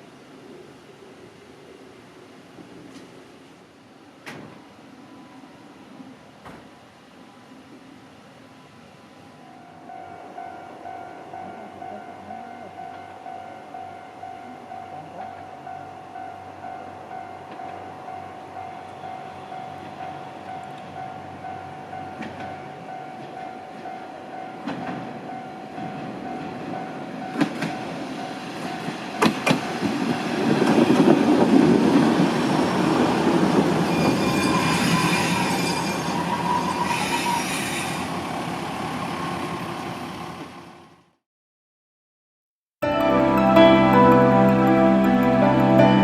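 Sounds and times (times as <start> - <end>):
diesel railcar rumbling: 9.4 - 41.2
high wheel squeal: 33.6 - 38.6.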